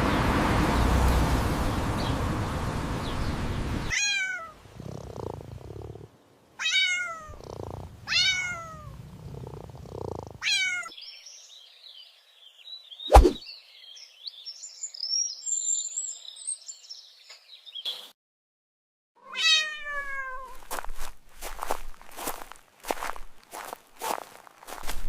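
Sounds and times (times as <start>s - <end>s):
cat meowing: 3.9s - 4.6s, 6.6s - 7.4s, 8.0s - 9.0s, 10.4s - 10.9s, 19.2s - 20.6s
cat purring: 4.7s - 6.1s, 7.0s - 10.5s
birds chirping: 7.3s - 18.1s.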